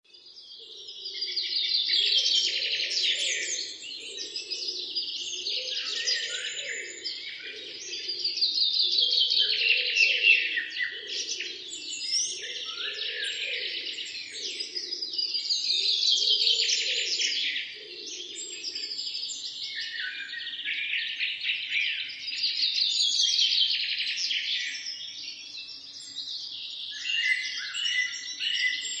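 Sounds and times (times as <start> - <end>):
birds chirping and singing: 0.1 - 29.0.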